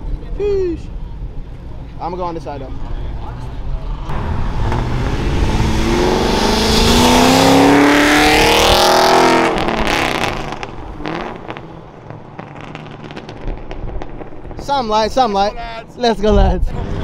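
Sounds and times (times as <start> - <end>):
car accelerating past: 4.1 - 11.8.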